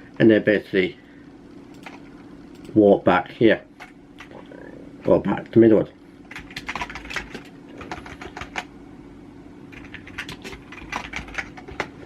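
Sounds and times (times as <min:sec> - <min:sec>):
rapid light clicks: 0:01.7 - 0:02.8.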